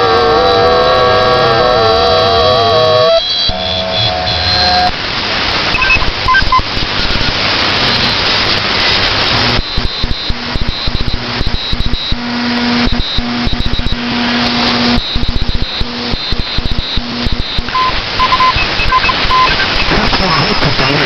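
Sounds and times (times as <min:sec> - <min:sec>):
steady radio tones: 0:00.0 - 0:21.0
radio static hiss: 0:02.2 - 0:21.0
short beeps: 0:03.2 - 0:04.9, 0:05.7 - 0:07.3, 0:09.6 - 0:21.0
rapid even radio pulsing: 0:03.5 - 0:21.0.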